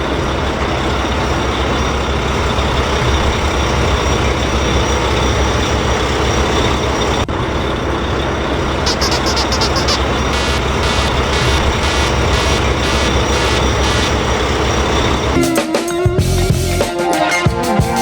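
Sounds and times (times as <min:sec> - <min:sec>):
short high-pitched pulses: 0:08.9 - 0:14.4.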